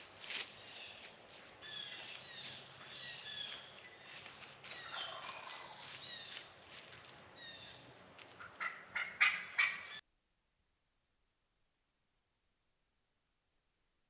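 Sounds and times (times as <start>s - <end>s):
songbirds chirping: 0.0s - 10.0s
turkey gobbling: 4.8s - 6.0s, 8.4s - 10.0s.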